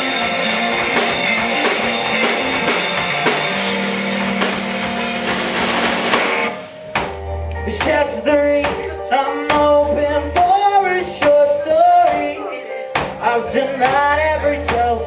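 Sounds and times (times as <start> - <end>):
bass guitar: 0.0 - 15.0
drums: 0.0 - 15.0
electric guitar: 0.0 - 15.0
person singing: 7.5 - 15.0.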